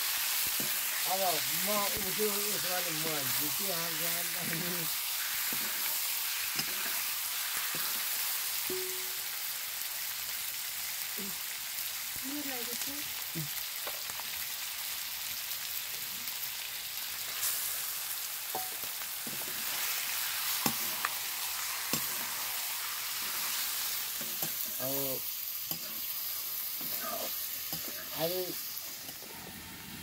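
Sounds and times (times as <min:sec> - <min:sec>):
chicken sizzling in hot oil: 0:00.0 - 0:30.0.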